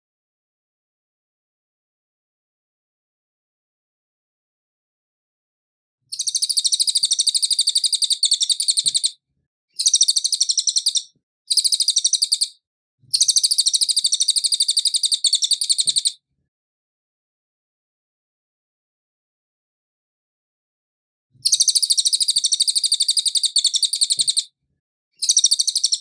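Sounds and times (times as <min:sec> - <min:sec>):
songbird trilling: 0:06.1 - 0:09.2, 0:09.8 - 0:12.6, 0:13.2 - 0:16.2, 0:21.4 - 0:24.5, 0:25.2 - 0:26.0.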